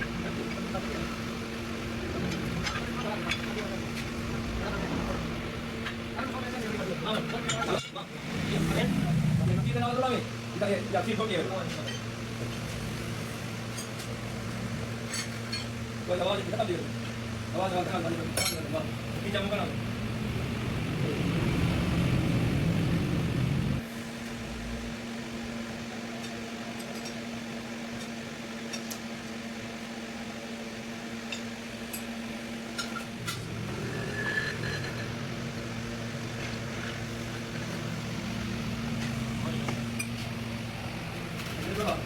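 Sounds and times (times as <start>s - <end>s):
steady machine hum: 0.0s - 42.0s
low rumble: 8.4s - 10.1s.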